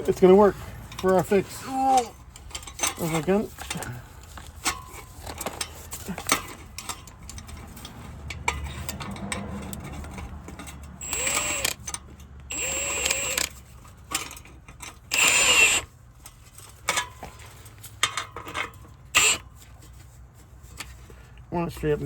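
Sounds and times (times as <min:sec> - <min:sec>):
tool clicks: 0:08.4 - 0:15.9
impact gun tightening nuts: 0:08.7 - 0:15.9, 0:18.5 - 0:19.4.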